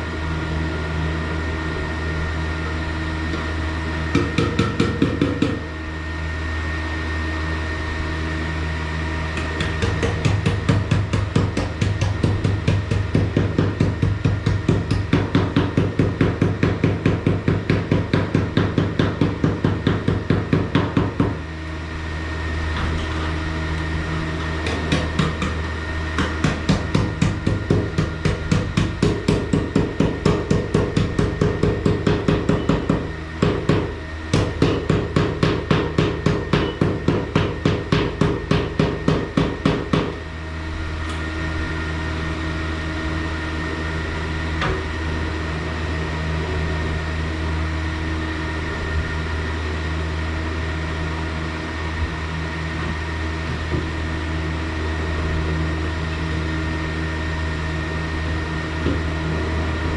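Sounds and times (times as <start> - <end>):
steady hum: 0.0 - 59.9.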